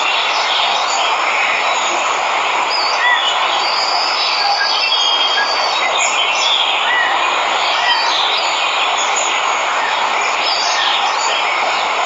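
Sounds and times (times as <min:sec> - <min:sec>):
birds chirping: 0:00.0 - 0:12.0
waterfall rushing: 0:00.0 - 0:12.0.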